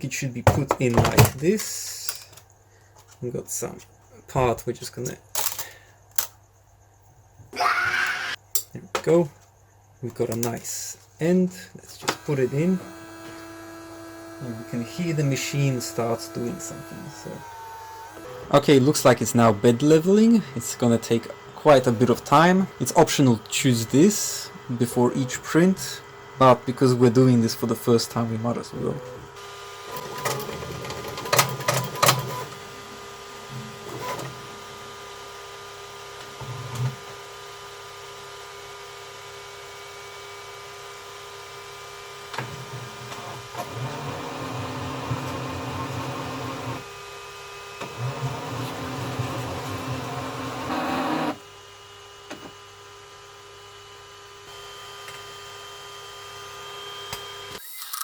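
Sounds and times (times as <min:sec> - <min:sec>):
printer motor whine: 0:12.0 - 0:58.0.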